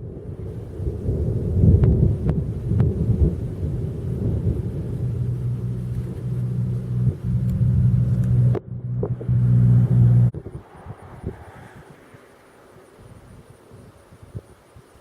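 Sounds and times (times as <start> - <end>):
thunder rumbling: 0.0 - 14.2
steady low hum: 1.1 - 11.3.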